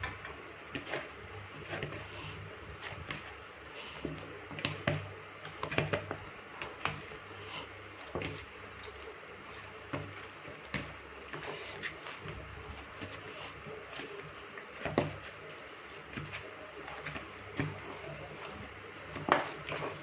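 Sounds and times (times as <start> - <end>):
hands kneading dough: 0.7 - 20.0.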